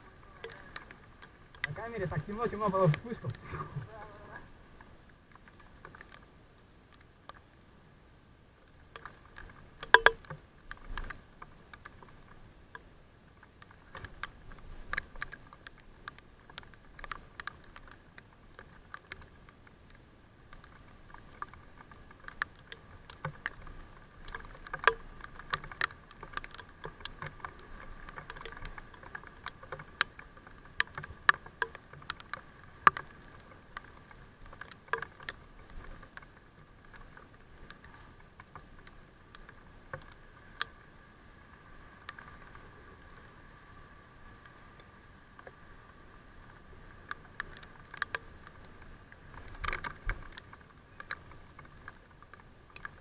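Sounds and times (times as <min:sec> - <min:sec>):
raindrops tapping near microphone: 0:00.0 - 0:07.6, 0:08.5 - 0:53.0.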